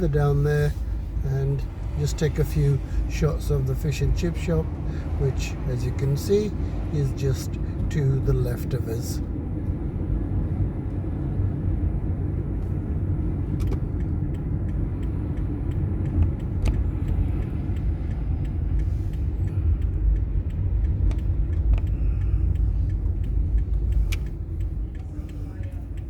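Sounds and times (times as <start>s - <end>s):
car engine and road rumble: 0.0s - 26.0s
faint clicks: 13.5s - 26.0s.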